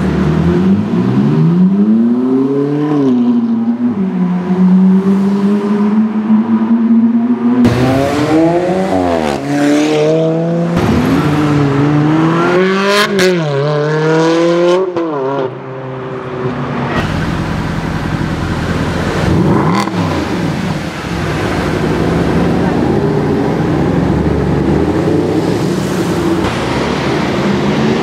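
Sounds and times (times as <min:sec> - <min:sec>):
rougher car engine passing: 0:00.0 - 0:28.0
sports car engine accelerating: 0:16.7 - 0:28.0.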